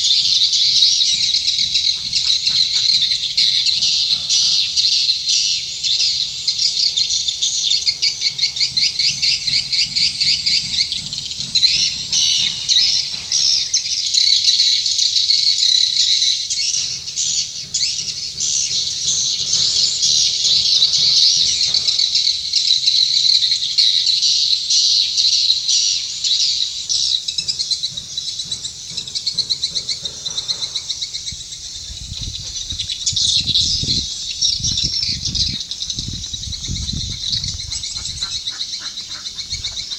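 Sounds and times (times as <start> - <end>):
low rumbling thumps: 31.3 - 38.5.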